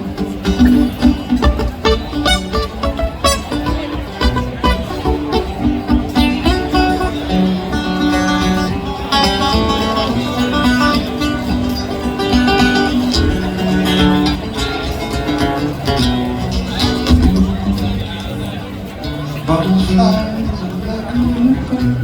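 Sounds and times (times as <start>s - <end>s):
acoustic guitars playing: 0.0s - 22.0s.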